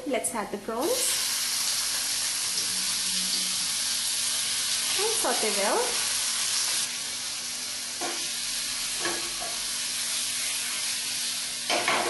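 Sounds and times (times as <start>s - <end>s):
prawns sizzling in oil: 0.8s - 12.0s.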